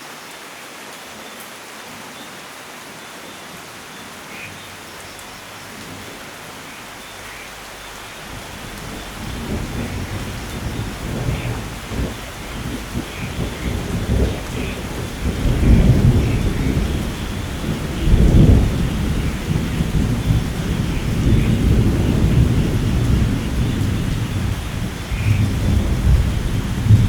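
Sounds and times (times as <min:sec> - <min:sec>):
steady rain: 0:00.0 - 0:27.0
rolling thunder: 0:08.0 - 0:27.0.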